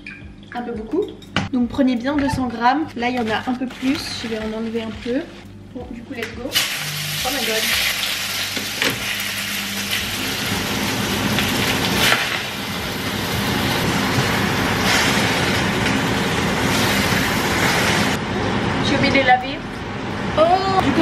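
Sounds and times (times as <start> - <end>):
range hood fan running: 1.6 - 21.0
spinach sizzling in oil: 6.5 - 18.2.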